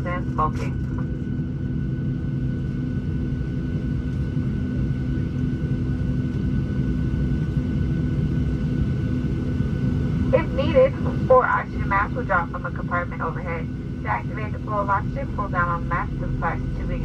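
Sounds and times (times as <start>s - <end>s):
airliner cabin rumble and hum: 0.0s - 17.0s
faint steady whine: 9.2s - 17.0s.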